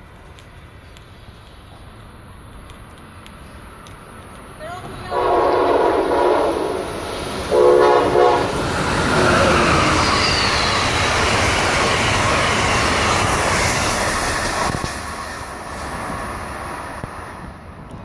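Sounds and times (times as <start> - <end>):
train passing with loud rush: 0.0 - 18.0
locomotive horn blasts: 5.1 - 8.6.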